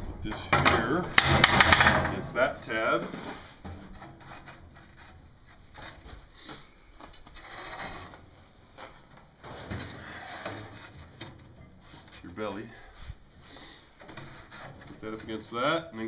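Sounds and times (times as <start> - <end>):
metal bending machine clattering: 0.2 - 2.3.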